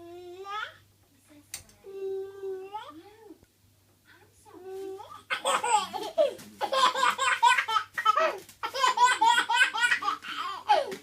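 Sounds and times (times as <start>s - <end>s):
toddler laughing hysterically: 5.3s - 11.0s.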